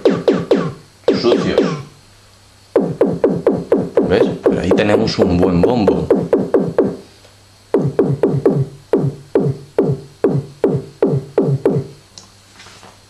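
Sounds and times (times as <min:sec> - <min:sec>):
synthesized kick drum thuds: 0:00.0 - 0:01.9, 0:02.8 - 0:07.0, 0:07.7 - 0:12.0.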